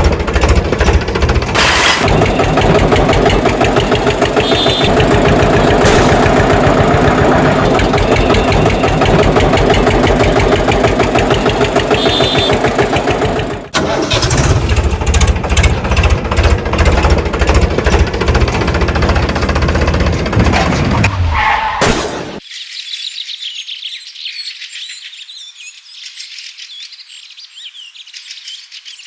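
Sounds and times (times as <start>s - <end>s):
engine pulsing: 0.0s - 21.7s.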